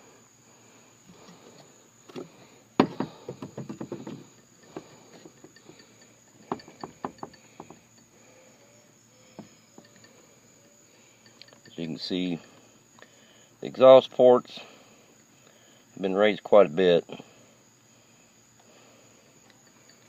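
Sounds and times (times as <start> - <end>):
metallic knocks and clinks: 2.8 - 8.1, 9.4 - 10.2, 11.2 - 11.8.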